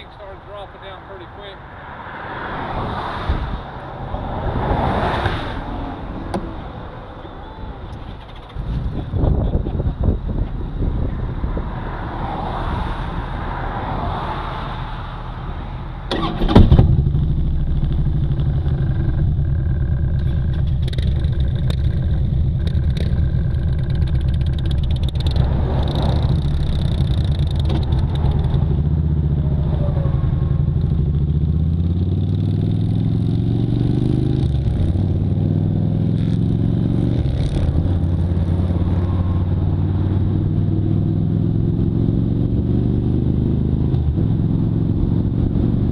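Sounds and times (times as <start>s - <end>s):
motorcycle engine running: 16.3s - 30.0s.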